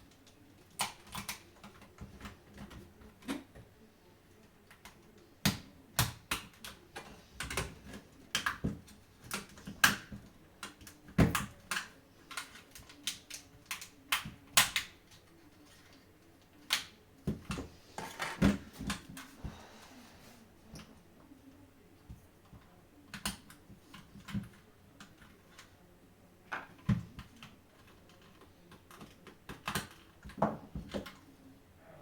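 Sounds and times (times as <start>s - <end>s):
hard plastic clicks and taps: 4.7s - 15.2s.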